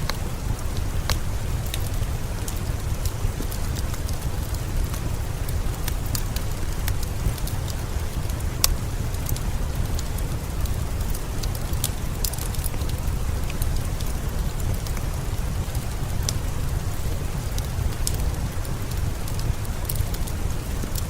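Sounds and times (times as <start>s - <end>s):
steady rain: 0.0s - 21.0s
wood fire crackling: 0.0s - 21.0s.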